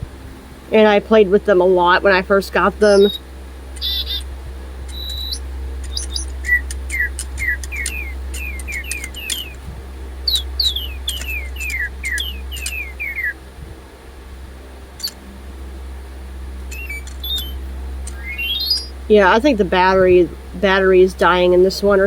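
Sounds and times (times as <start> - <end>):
robot toy birds chirping: 2.4 - 3.2, 3.8 - 4.3, 4.9 - 9.6, 10.2 - 13.4, 15.0 - 15.2, 16.7 - 22.0.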